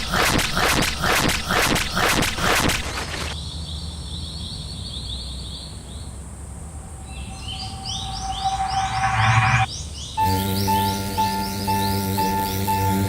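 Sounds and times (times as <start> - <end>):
birds chirping: 3.3 - 13.0
low hum: 6.6 - 13.0
steady tone: 6.6 - 13.0
higher chirping bird: 6.7 - 13.0.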